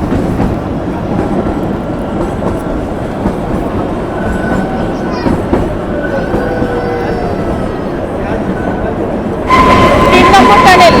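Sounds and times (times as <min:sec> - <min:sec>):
train wheels clattering on rails: 0:00.0 - 0:07.7.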